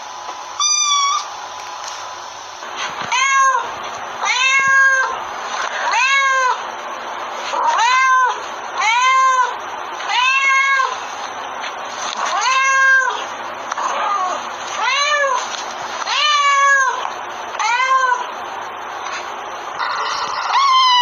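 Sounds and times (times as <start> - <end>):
cat meowing: 0.6 - 1.3, 3.1 - 5.2, 5.8 - 6.6, 7.6 - 11.0, 12.3 - 15.4, 16.1 - 17.0, 17.6 - 18.3, 19.8 - 21.0.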